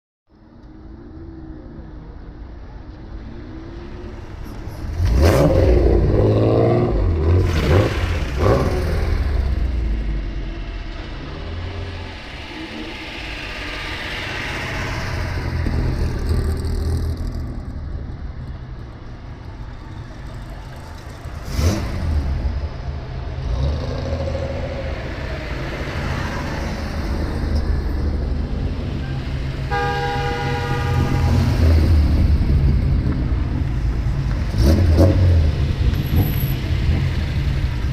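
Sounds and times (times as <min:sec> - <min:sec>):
car exhausts revving: 0:04.8 - 0:17.4, 0:23.3 - 0:37.9.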